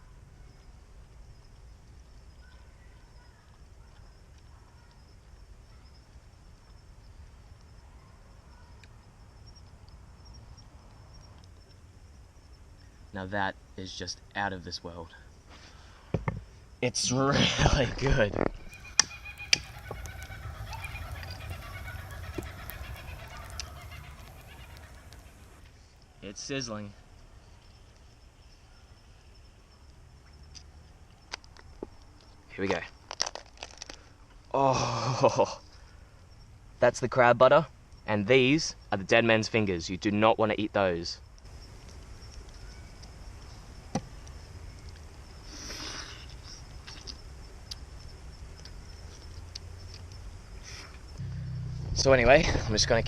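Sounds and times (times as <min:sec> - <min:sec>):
insect chirring: 0:00.0 - 0:15.4, 0:18.1 - 0:53.0
campfire crackling: 0:00.1 - 0:15.6, 0:16.5 - 0:53.0
low rumble: 0:18.5 - 0:25.6, 0:51.2 - 0:53.0
night creatures calling: 0:18.6 - 0:25.6, 0:50.0 - 0:53.0.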